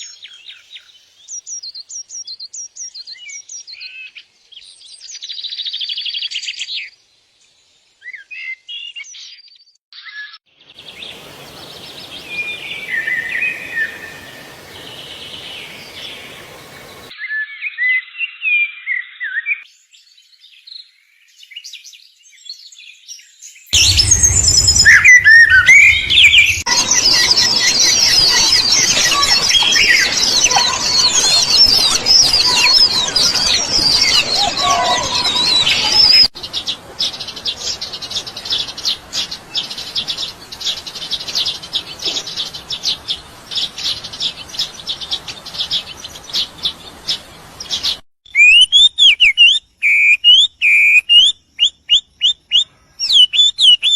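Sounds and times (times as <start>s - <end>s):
small birds chirping: 10.7s - 17.1s, 19.7s - 53.9s.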